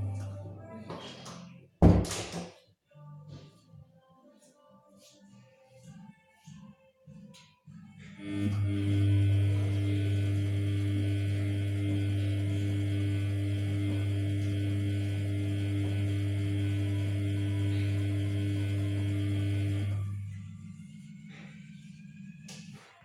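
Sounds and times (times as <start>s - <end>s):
washing machine electrical hum: 0.0s - 0.9s, 8.2s - 22.8s.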